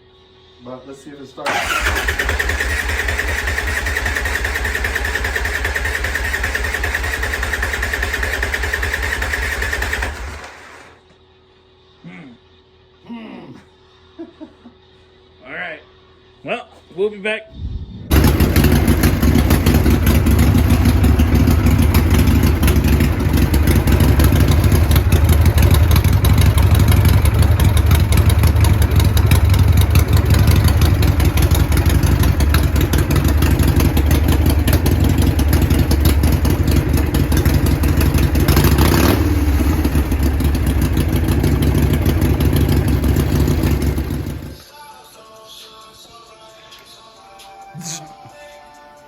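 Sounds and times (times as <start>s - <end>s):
motorcycle engine fast idle: 1.5s - 11.0s, 18.1s - 44.6s.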